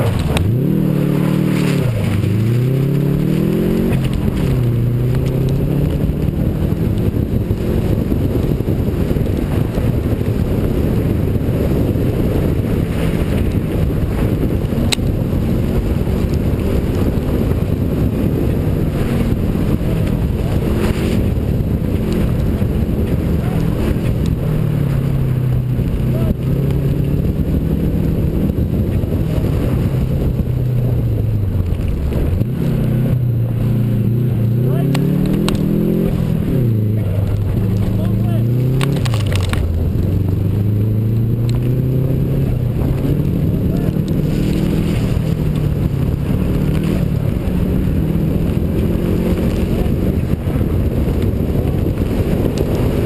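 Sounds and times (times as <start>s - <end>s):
rally car engine revving: 0.0s - 53.0s.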